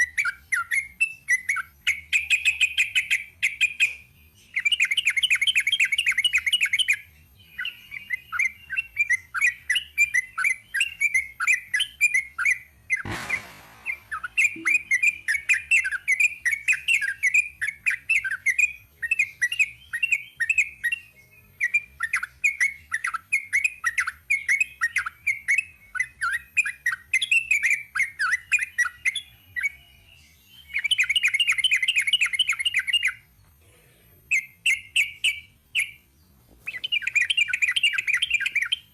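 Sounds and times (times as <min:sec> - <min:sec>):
brief rushing noise: 0:13.0 - 0:15.5.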